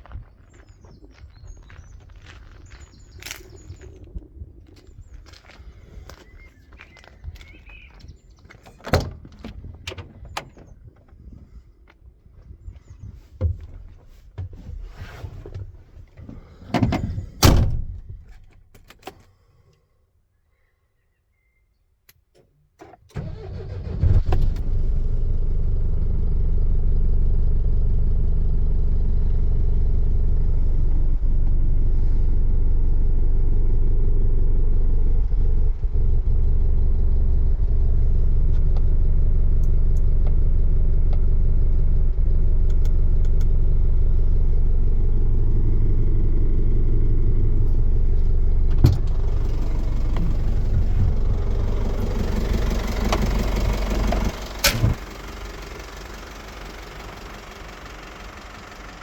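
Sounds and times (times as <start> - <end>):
diesel engine starting and idling: 22.8 - 59.0.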